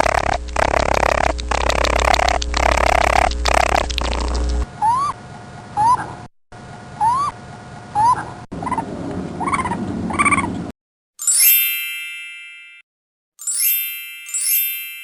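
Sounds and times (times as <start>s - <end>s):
loud noisy sound: 0.0s - 4.7s
rising and falling animal calls: 0.0s - 5.2s, 7.0s - 10.7s.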